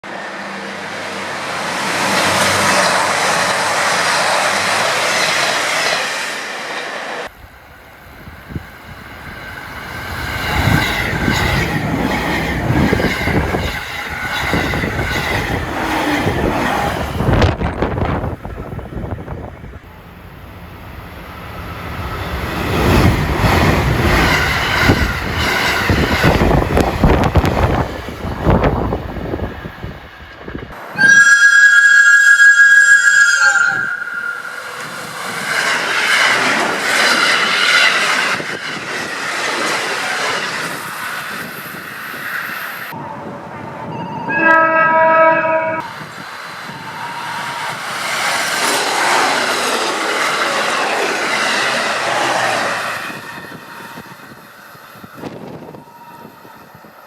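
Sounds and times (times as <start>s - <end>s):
train wheels clattering over rails: 21.6s - 29.4s.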